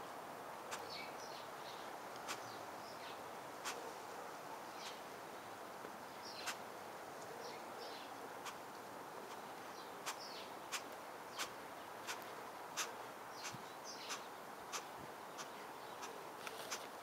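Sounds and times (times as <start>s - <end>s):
small birds chirping: 0.7s - 3.8s, 4.7s - 6.6s, 7.3s - 17.0s
light hiss: 7.9s - 17.0s.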